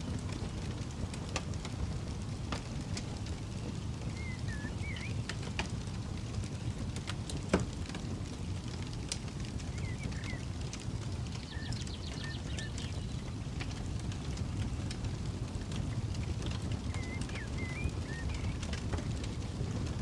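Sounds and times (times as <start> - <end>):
campfire crackling and popping: 0.0 - 20.0
steady low rumble: 0.0 - 20.0
bird chirping: 4.2 - 5.3, 9.7 - 10.4, 11.5 - 13.2, 16.8 - 18.7.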